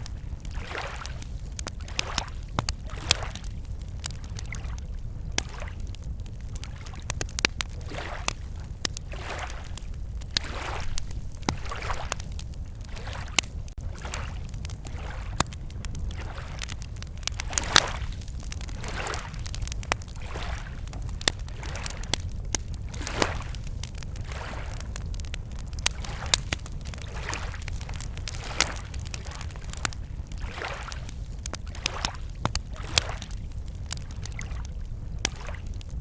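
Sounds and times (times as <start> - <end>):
campfire crackling and popping: 0.0 - 36.0
lake waves lapping: 0.1 - 5.9, 6.5 - 7.0, 7.6 - 22.2, 22.8 - 34.6
steady low rumble: 8.5 - 30.5.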